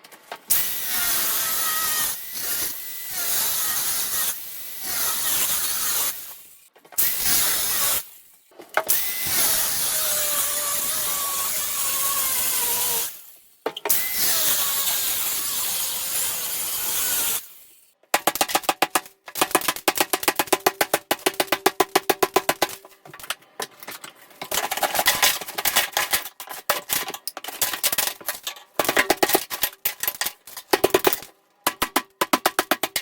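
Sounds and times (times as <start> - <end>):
power tool cutting: 0.5 - 6.4, 8.9 - 13.2.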